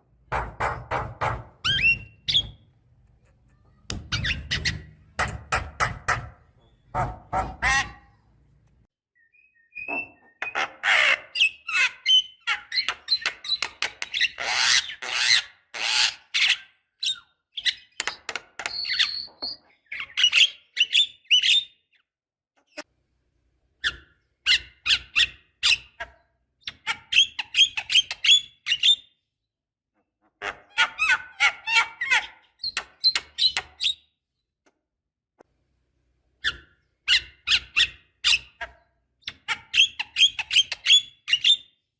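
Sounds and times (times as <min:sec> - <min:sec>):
bird squawking and chattering: 0:06.8 - 0:08.2, 0:09.8 - 0:17.9, 0:30.4 - 0:34.0, 0:36.4 - 0:41.7.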